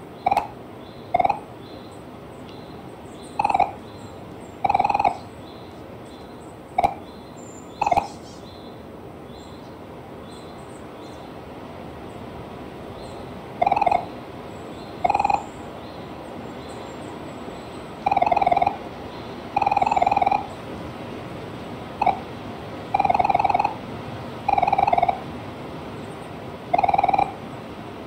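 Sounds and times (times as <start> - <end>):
steady background hiss: 0.0 - 28.0
animal calling: 0.2 - 1.5, 3.3 - 3.8, 4.6 - 5.3, 6.8 - 7.0, 7.8 - 8.2, 13.6 - 14.2, 14.9 - 15.6, 17.9 - 18.9, 19.5 - 20.6, 22.0 - 23.8, 24.4 - 25.3, 26.7 - 27.5.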